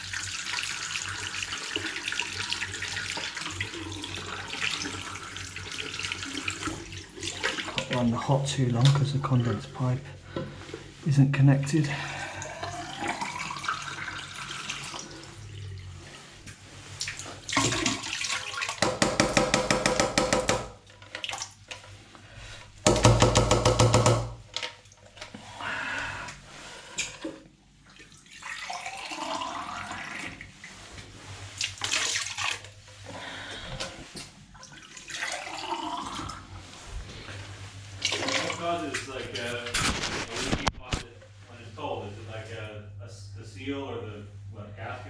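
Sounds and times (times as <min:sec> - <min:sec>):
tap water running into sink: 0:00.0 - 0:09.1, 0:13.0 - 0:15.6, 0:17.0 - 0:21.6, 0:38.0 - 0:39.5
drain gurgling: 0:00.0 - 0:09.3, 0:11.7 - 0:18.9, 0:27.8 - 0:39.7.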